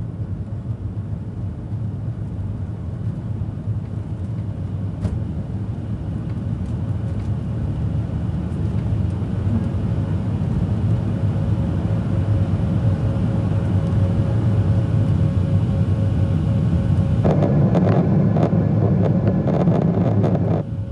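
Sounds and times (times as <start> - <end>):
jet engines rumbling: 0.1 - 20.9
rough rushing noise with rattling: 17.2 - 20.9.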